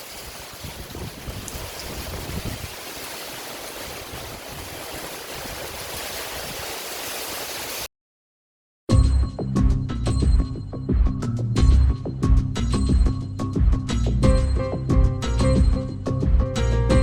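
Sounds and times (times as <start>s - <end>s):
heavy rain falling: 0.0s - 7.9s.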